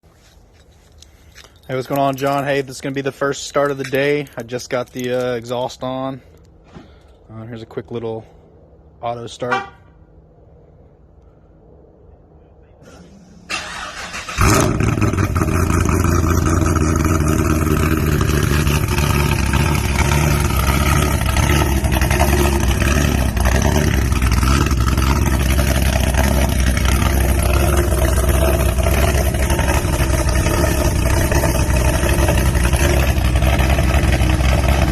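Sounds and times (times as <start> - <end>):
starter motor cranking: 13.5 - 34.9
car engine idling loudly: 13.7 - 34.9.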